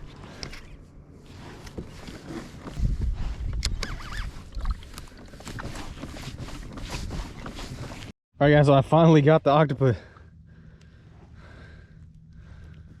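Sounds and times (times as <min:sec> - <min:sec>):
short squeaks: 0:03.5 - 0:06.2
knocks and rubbing on kayak hull: 0:04.9 - 0:08.1.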